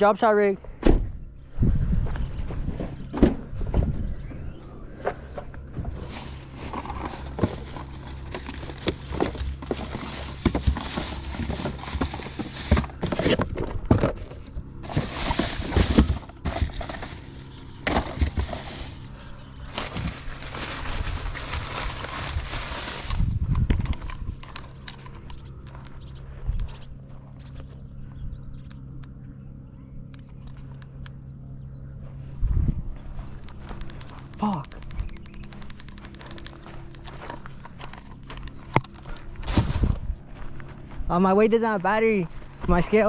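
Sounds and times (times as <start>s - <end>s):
steady low rumble: 0.0s - 43.0s
rustling: 5.8s - 25.2s.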